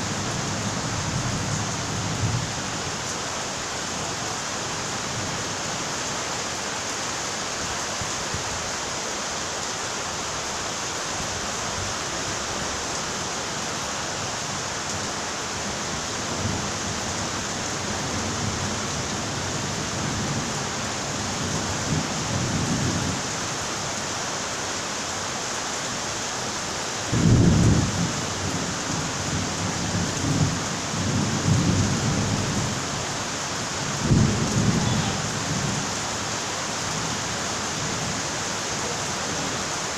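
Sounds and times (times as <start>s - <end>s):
steady rain: 0.0s - 39.9s
thunder rumbling: 27.1s - 28.2s, 34.0s - 35.8s.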